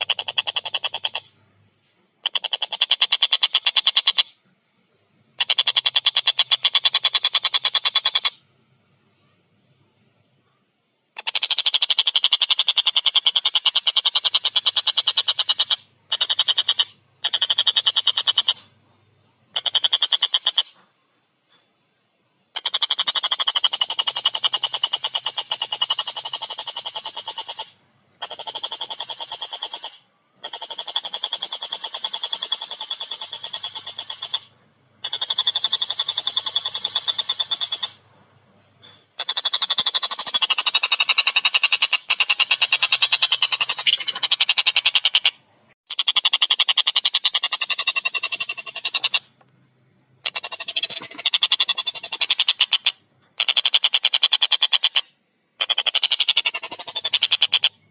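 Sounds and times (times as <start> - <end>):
kingfisher rattling call: 5.4 - 8.4, 11.2 - 18.6, 19.5 - 20.7, 22.6 - 38.0, 39.2 - 49.3, 50.2 - 57.8.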